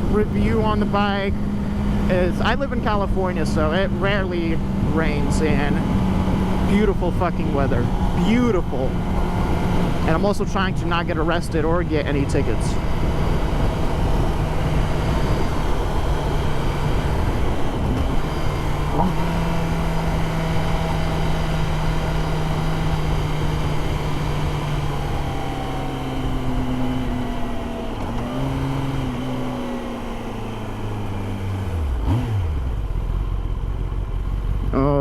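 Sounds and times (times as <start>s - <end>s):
motorcycle engine cruising: 0.0s - 35.0s
wind rush: 4.6s - 21.3s.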